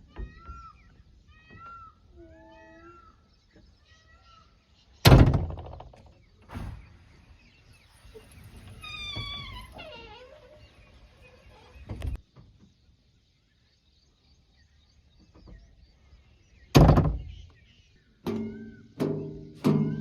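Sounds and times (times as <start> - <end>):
loud thump: 5.1 - 7.2, 16.7 - 17.3.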